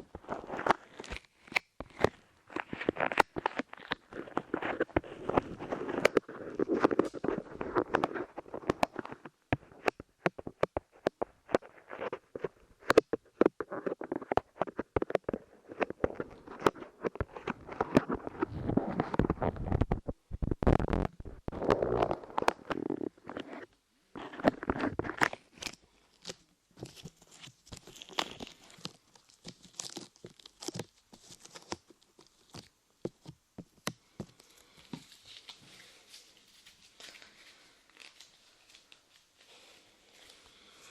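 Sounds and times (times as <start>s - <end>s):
clay squished crackling: 24.7s - 36.2s.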